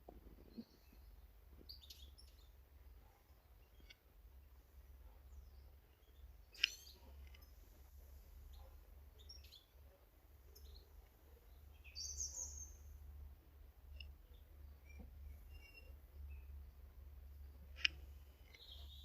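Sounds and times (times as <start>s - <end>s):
birds chirping: 0.2s - 19.0s
sharp click: 6.5s - 7.5s.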